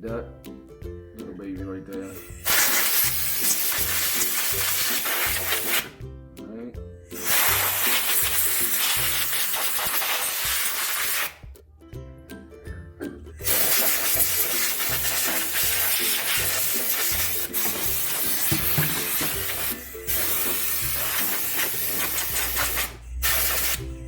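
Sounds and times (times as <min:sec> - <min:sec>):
background music: 0:00.0 - 0:24.0
aerosol can spraying: 0:02.2 - 0:06.0, 0:07.2 - 0:11.4, 0:13.4 - 0:24.0.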